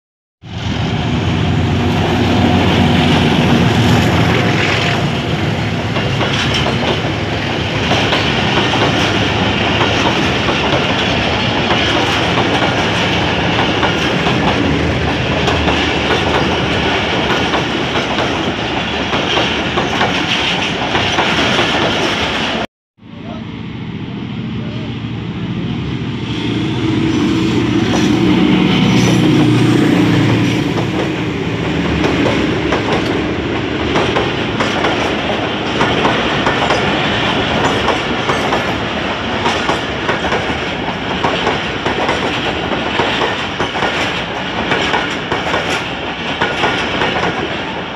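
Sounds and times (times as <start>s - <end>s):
train wheels clattering over rail joints: 5.8s - 22.4s, 33.8s - 47.7s.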